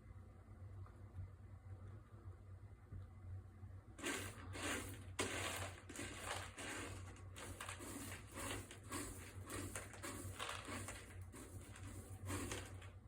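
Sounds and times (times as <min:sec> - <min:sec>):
cat digging in litter: 0:04.0 - 0:13.0.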